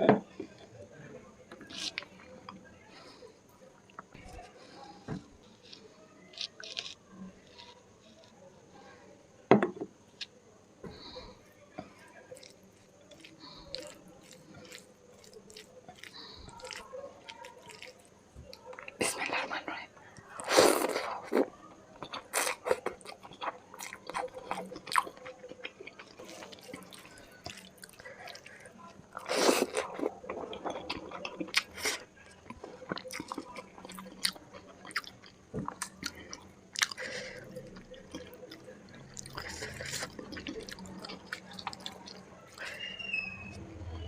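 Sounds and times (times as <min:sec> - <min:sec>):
crunchy bites: 0:05.3 - 0:08.4, 0:12.3 - 0:19.6, 0:20.3 - 0:43.4
chewing with mouth smacks: 0:11.8 - 0:19.5, 0:20.2 - 0:43.0.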